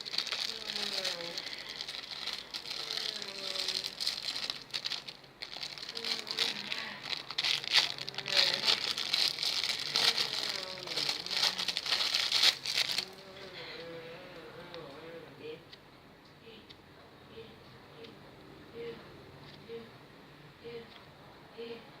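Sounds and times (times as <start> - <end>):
crinkly scratchy rustling: 0.0 - 13.9.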